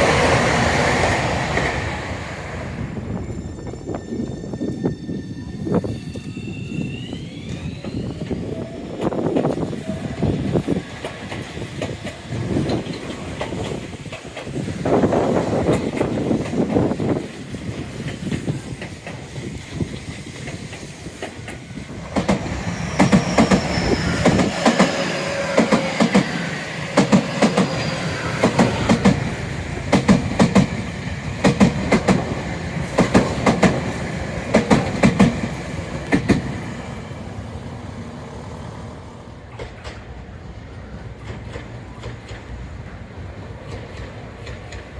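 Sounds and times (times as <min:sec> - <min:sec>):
train wheels clacking over rail joints: 0:09.0 - 0:36.6, 0:39.4 - 0:40.2, 0:41.1 - 0:44.9.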